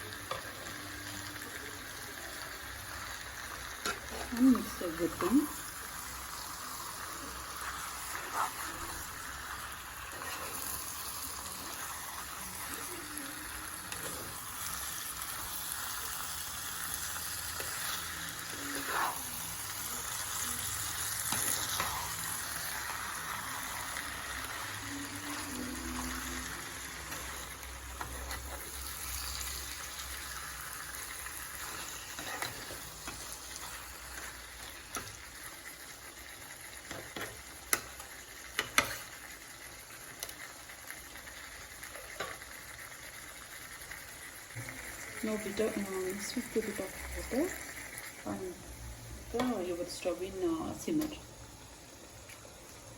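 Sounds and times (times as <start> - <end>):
food sizzling in oil: 0.0 - 52.9
spoon scraping a pan: 3.6 - 5.6, 6.8 - 15.7, 16.8 - 35.4, 36.8 - 39.2.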